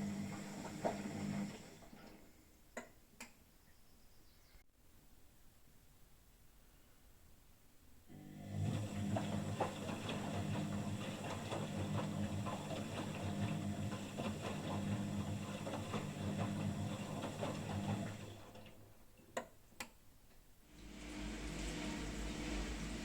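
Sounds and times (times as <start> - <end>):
washing machine motor humming: 0.0 - 2.3, 8.1 - 19.0, 20.7 - 23.0.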